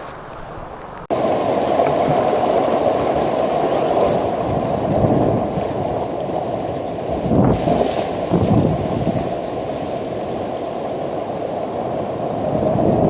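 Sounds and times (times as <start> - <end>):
rush of flowing water: 0.0 - 3.8.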